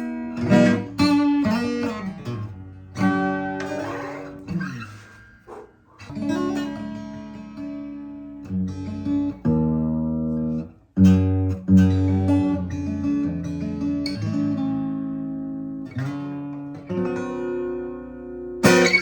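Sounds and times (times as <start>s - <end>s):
acoustic guitar chords ringing: 0.0s - 19.0s.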